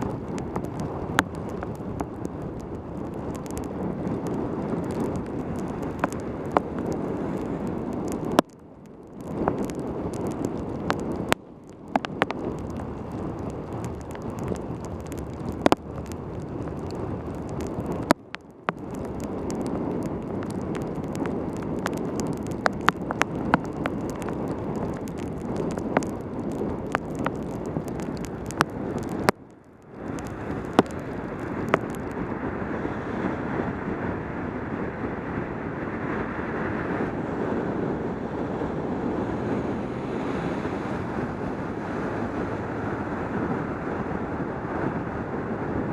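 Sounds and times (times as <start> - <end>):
sharp ticks: 0.0 - 7.0, 8.0 - 32.2
wind rushing over microphone: 0.0 - 45.9.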